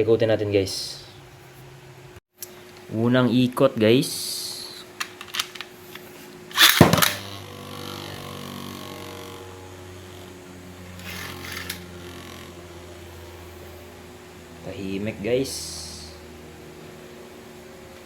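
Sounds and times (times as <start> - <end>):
launcher ripping: 6.5 - 7.4
spinning top humming: 6.5 - 13.7.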